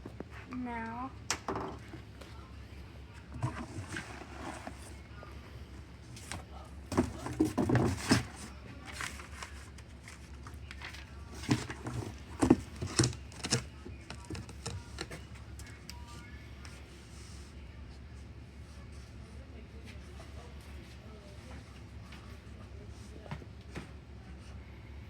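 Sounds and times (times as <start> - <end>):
steady low hum: 0.0 - 25.0
handling knocks and scrapes: 3.2 - 5.0, 6.1 - 9.4, 11.3 - 15.3.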